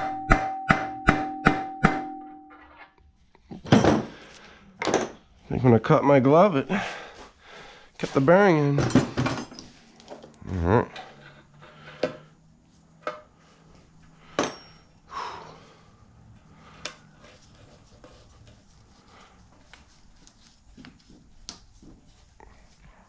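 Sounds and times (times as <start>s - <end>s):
metal tools clinking and knocking: 3.6s - 4.2s, 4.8s - 5.2s, 8.8s - 10.3s, 14.3s - 14.9s.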